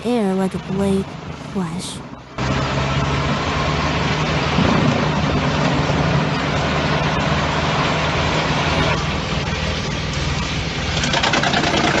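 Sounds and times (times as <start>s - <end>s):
diesel engine hum: 0.0s - 12.0s
wood chipper grinding: 10.8s - 12.0s.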